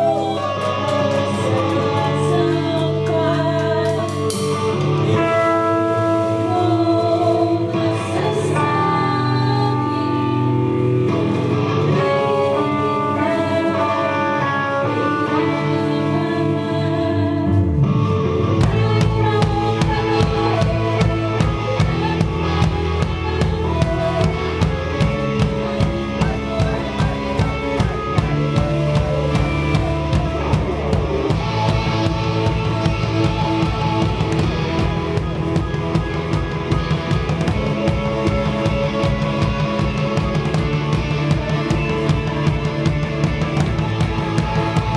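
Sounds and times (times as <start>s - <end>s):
guitar and bass notes: 0.0s - 44.9s
drum kit beat: 18.6s - 44.9s.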